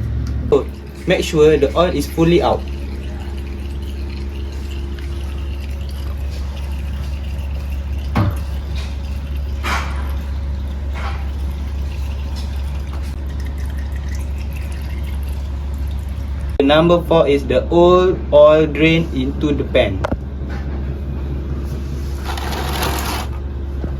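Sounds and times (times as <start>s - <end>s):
steady low hum: 0.0s - 23.9s
oil draining into a pan: 0.6s - 16.6s
oil drips striking oil: 0.6s - 16.6s.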